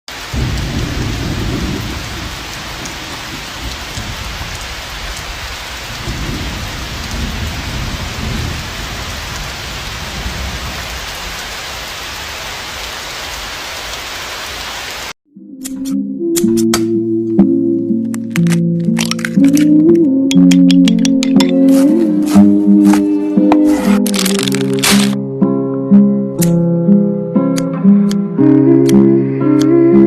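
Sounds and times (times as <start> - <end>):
rolling thunder: 0.1 - 12.9
heavy rain: 0.1 - 15.2, 23.6 - 25.2.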